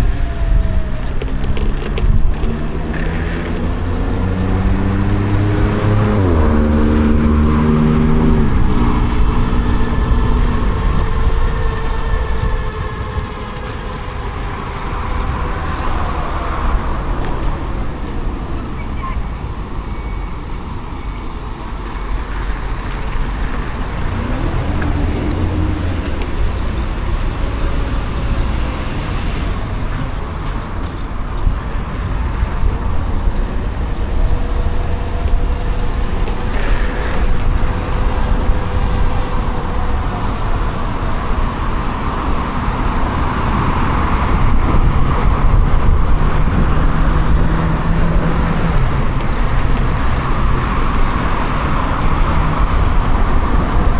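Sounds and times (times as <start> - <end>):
rumbling road noise: 0.0 - 53.9
wind rushing over microphone: 0.0 - 53.9.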